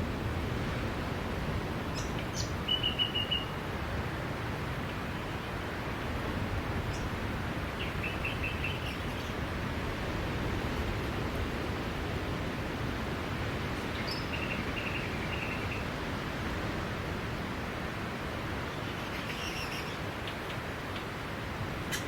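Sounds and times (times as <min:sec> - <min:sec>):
ocean surf washing on shore: 0:00.0 - 0:02.7, 0:09.3 - 0:18.9.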